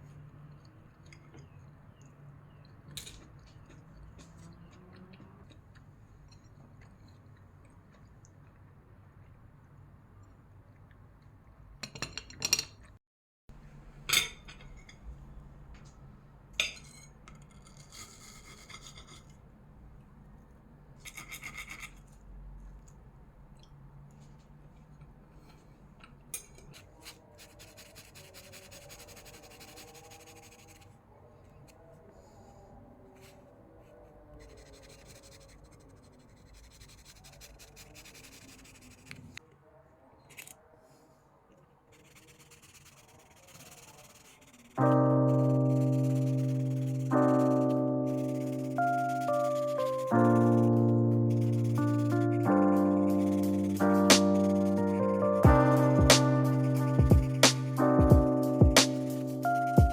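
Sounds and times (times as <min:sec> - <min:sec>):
dishes and cutlery clinking: 0:11.8 - 0:13.0, 0:14.0 - 0:15.1, 0:16.6 - 0:18.0, 0:26.3 - 0:26.8
scratching on hard surface: 0:16.8 - 0:19.4.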